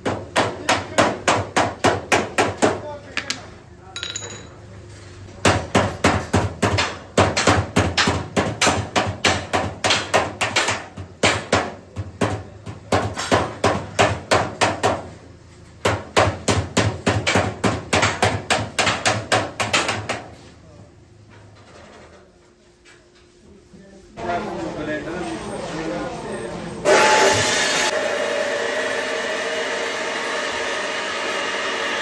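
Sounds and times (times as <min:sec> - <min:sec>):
hammer striking sheet metal: 0:05.4 - 0:15.1, 0:15.8 - 0:20.3.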